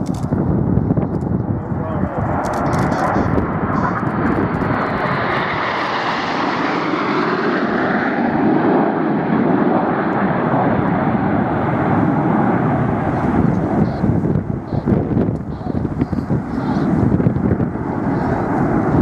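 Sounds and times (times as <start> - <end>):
jets flying past: 1.5 - 19.0.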